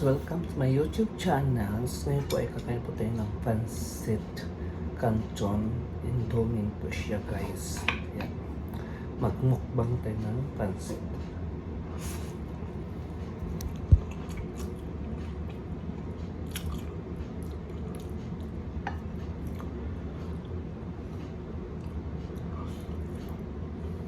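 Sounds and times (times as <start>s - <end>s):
steady low hum: 0.0s - 24.0s
wet chewing: 13.0s - 20.6s.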